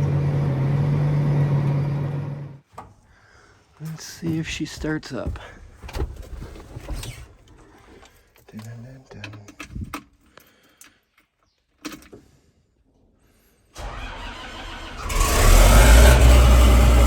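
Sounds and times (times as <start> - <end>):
diesel engine starting and running: 0.0 - 2.6, 13.8 - 17.0.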